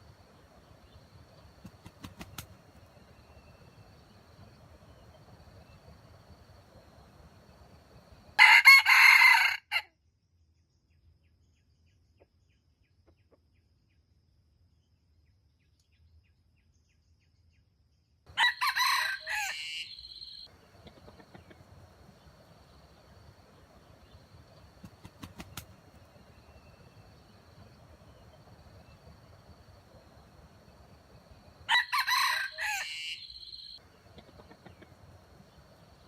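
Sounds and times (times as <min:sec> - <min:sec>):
rooster crowing: 0:08.3 - 0:09.9, 0:18.3 - 0:22.6, 0:28.6 - 0:34.9.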